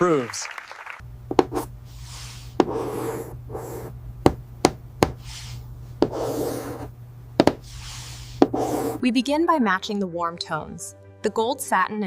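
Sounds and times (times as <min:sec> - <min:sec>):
steady low hum: 0:01.0 - 0:09.0
rubbing or rustling: 0:07.5 - 0:09.0.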